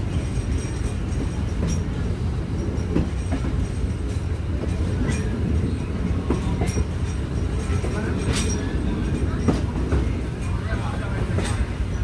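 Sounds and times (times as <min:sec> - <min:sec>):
train wheels rumbling: 0:00.0 - 0:12.0
wheels clanking over rail joints: 0:00.0 - 0:12.0.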